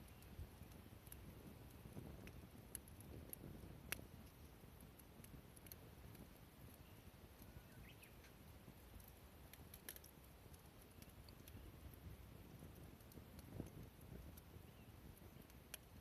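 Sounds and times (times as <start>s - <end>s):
faint clicks: 0.0s - 11.7s, 15.2s - 15.9s.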